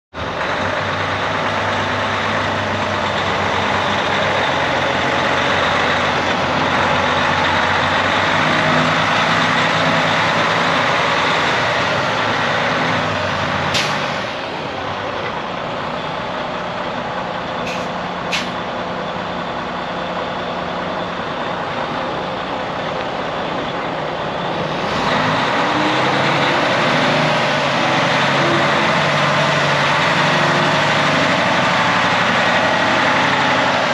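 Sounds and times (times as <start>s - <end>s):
diesel truck engine running: 0.1s - 33.9s.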